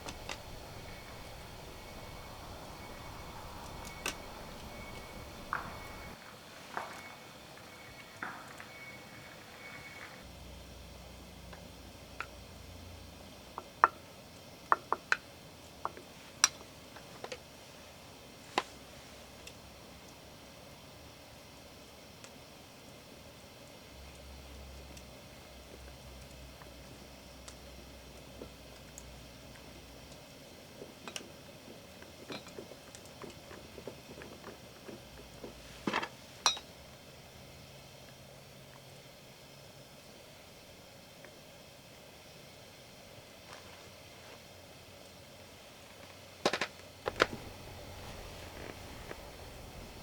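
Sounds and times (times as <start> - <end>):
rustling: 0.0 - 8.0, 43.4 - 44.6, 45.8 - 50.0.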